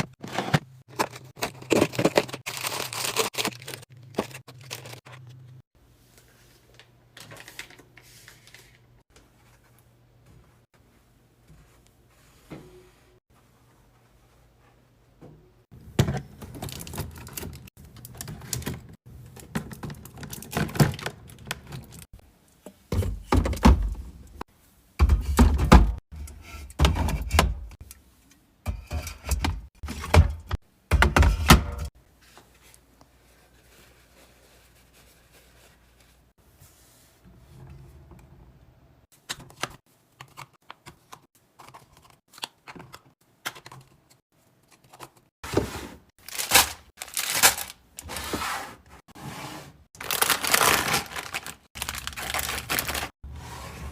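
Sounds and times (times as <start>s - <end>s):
plastic containers clicking and thunking: 22.7s - 24.2s, 28.7s - 31.9s.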